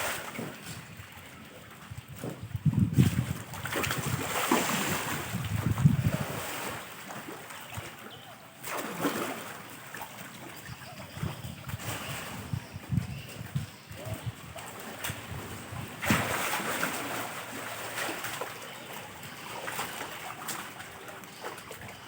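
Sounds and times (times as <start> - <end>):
water splashing and sloshing: 0.0 - 22.0
wind buffeting microphone: 1.8 - 6.9, 10.6 - 17.2.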